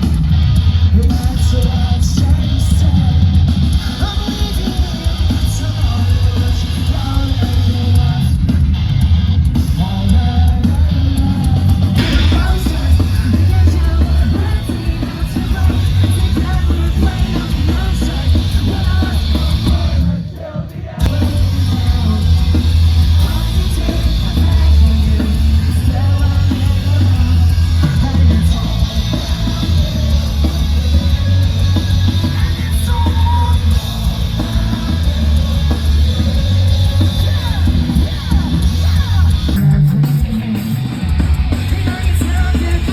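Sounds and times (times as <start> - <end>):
booming bass: 0.0 - 20.2, 21.0 - 42.9
live rock band playing: 0.0 - 20.3, 20.9 - 42.9
person singing or yelling: 9.8 - 40.6.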